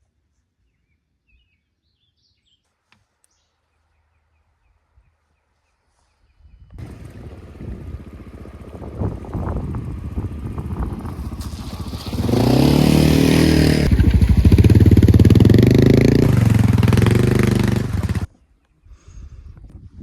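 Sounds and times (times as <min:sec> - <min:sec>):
motorcycle engine accelerating: 0:06.8 - 0:18.3.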